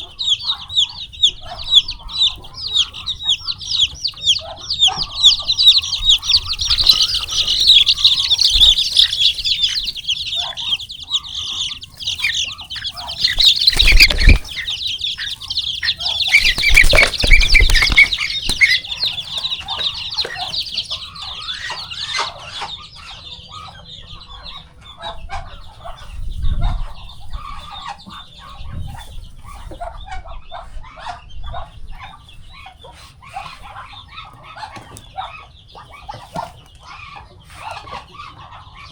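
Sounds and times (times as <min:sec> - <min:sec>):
chicks peeping: 0:00.0 - 0:38.9
clucking calls: 0:00.0 - 0:38.9
loud scuffling: 0:11.9 - 0:21.0.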